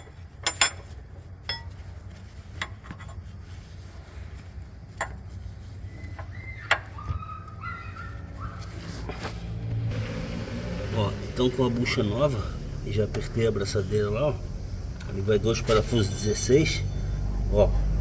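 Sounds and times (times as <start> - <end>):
steady low hum: 9.8 - 18.0.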